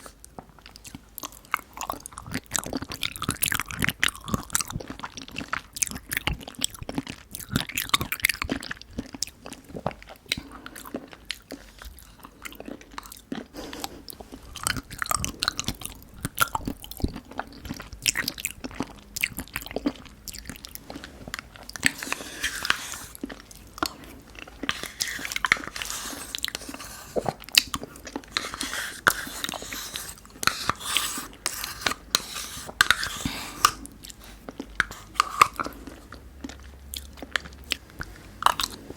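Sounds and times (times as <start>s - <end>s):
person biting and chewing: 10.7s - 38.9s.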